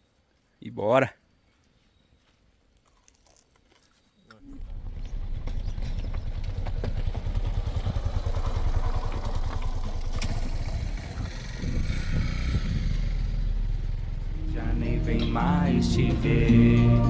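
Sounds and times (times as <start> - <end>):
vehicle engine and road rumble: 4.3 - 17.0
rattling clatter: 4.6 - 14.6.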